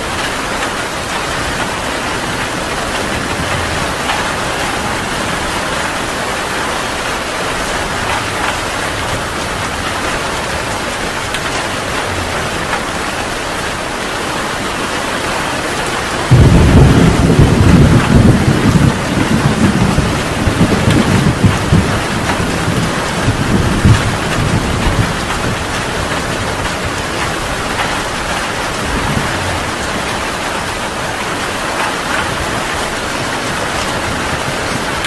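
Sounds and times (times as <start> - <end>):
heavy rain: 0.0 - 35.0
deep roll of thunder: 1.0 - 13.4, 16.2 - 30.9.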